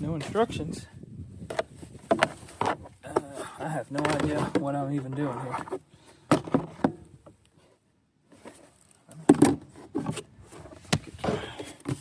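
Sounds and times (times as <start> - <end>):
parts knocking and clattering: 1.4 - 7.4, 9.2 - 12.0
parts rattling: 1.5 - 7.0.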